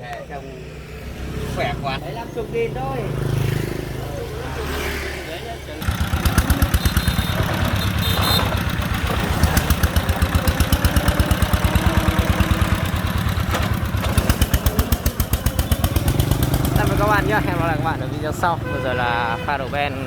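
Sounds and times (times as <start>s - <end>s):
diesel engine chugging: 5.6s - 20.0s.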